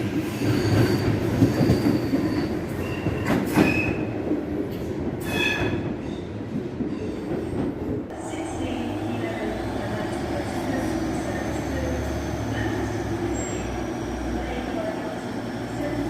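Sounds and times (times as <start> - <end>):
train wheels squealing: 0.0 - 4.0, 5.2 - 6.3, 11.2 - 14.0
train rumbling over rails: 0.0 - 16.0.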